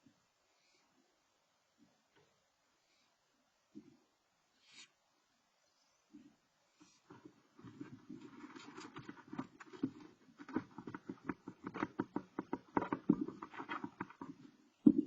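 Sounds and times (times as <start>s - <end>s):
owl scratching in nest box: 6.8s - 14.5s.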